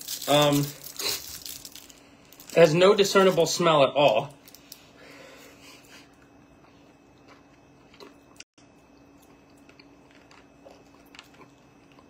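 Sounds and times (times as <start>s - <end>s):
sucking and chewing hard candy: 0.0s - 3.4s, 9.0s - 12.0s
steady low hum: 0.0s - 12.0s.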